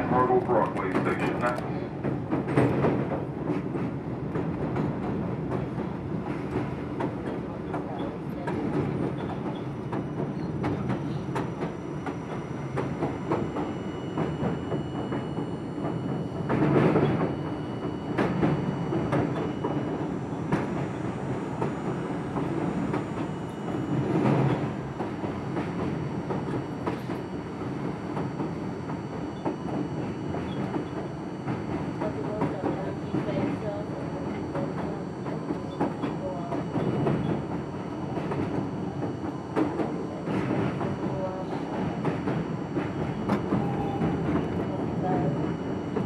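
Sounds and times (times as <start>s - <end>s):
subway train rumble: 0.0s - 46.0s.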